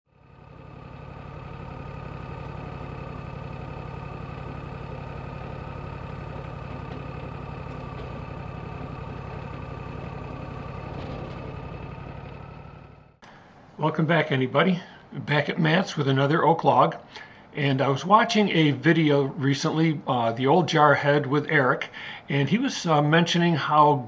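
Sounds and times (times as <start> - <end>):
sawmill engine running: 0.1 - 13.2.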